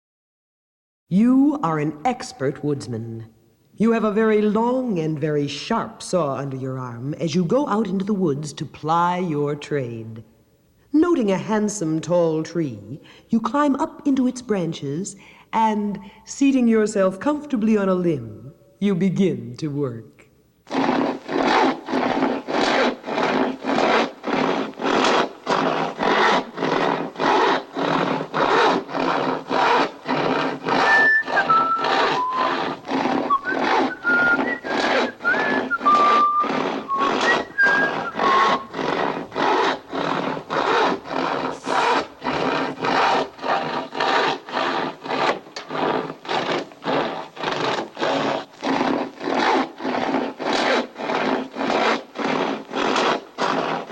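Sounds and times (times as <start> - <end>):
handsaw cutting wood: 20.7 - 53.9
whistled tune: 30.8 - 32.6, 33.3 - 38.7.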